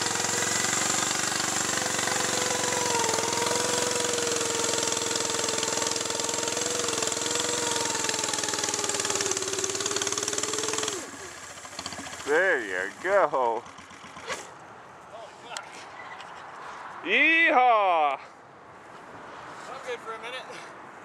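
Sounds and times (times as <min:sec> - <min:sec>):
lawn tractor engine running: 0:00.0 - 0:14.4.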